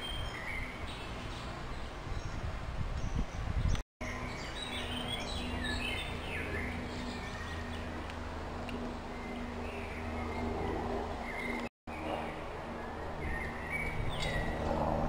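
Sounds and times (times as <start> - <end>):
small birds chirping: 0.0 - 14.8
outdoor background noise: 0.0 - 15.0.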